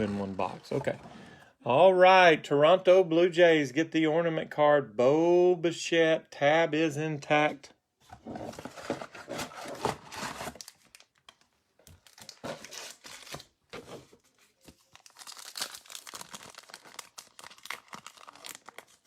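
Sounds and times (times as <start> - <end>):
wrapper tearing and crinkling: 11.9 - 13.5, 14.8 - 19.0.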